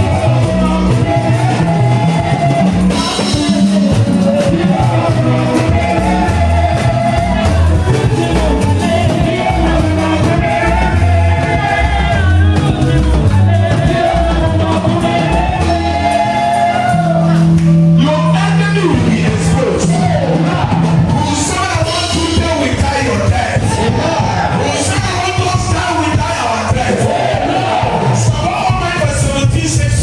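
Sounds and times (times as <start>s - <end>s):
person singing lead: 0.0s - 23.0s
band with bass and drums: 0.0s - 30.0s.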